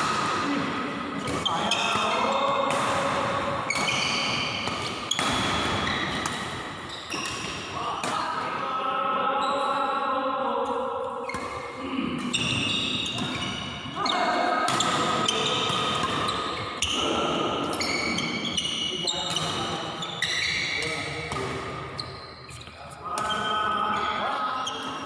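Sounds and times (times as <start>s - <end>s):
players' voices: 0.0s - 25.0s
racket striking shuttlecock: 2.7s - 6.7s.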